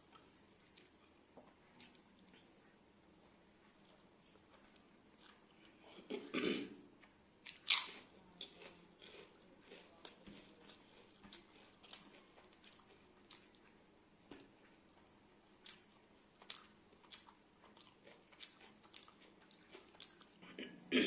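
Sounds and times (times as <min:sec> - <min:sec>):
wet chewing and mouth smacks: 0:00.1 - 0:02.7, 0:08.5 - 0:14.8, 0:15.6 - 0:20.4.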